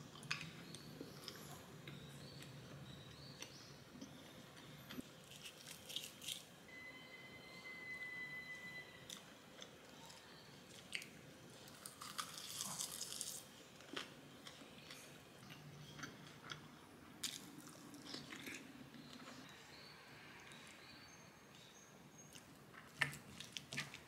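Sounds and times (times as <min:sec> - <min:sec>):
crunchy chewing: 0:09.1 - 0:19.5.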